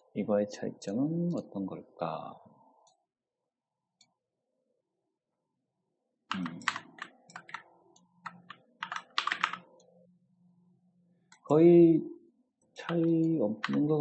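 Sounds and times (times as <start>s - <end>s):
computer keyboard typing: 6.3s - 9.9s, 12.8s - 14.0s.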